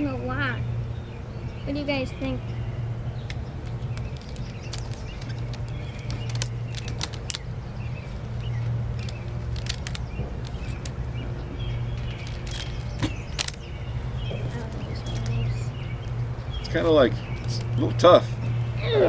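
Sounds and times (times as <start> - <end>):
steady low hum: 0.0 - 19.0
rubber bands snapping: 3.2 - 14.4.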